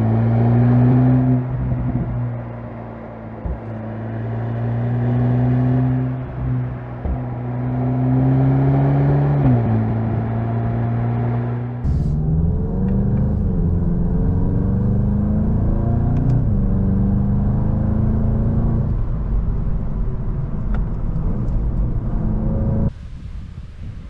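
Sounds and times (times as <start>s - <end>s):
car engine accelerating: 0.0s - 22.9s.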